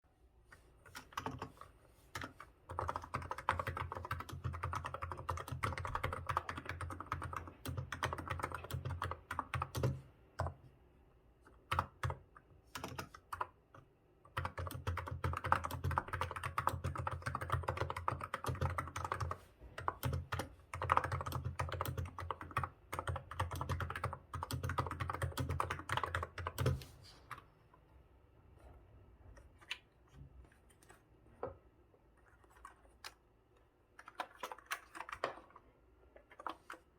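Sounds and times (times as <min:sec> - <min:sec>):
keyboard typing: 0:00.8 - 0:10.6, 0:11.5 - 0:27.5, 0:33.9 - 0:36.9.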